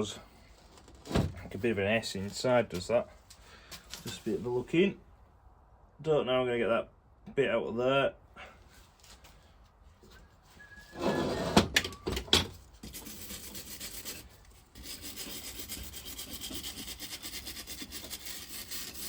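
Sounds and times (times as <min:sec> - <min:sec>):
scraping rust off metal: 0:10.9 - 0:19.0.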